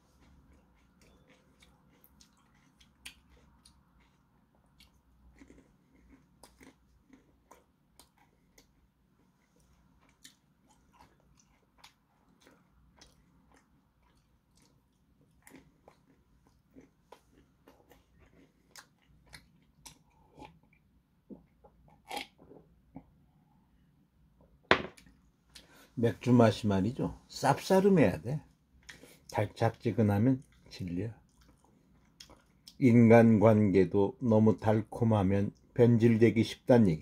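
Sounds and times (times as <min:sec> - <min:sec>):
chewing nuts with crunches: 0:00.1 - 0:23.1, 0:30.4 - 0:32.8.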